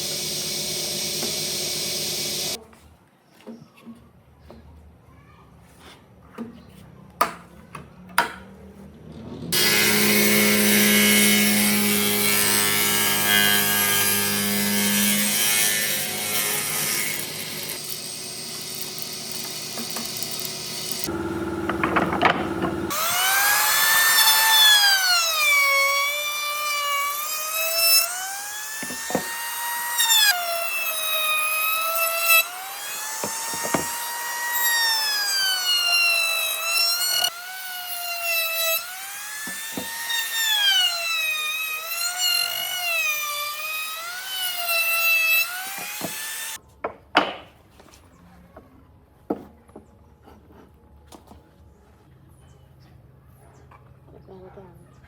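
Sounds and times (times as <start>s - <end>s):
power tool cutting wood: 0.0s - 2.6s, 9.5s - 46.6s.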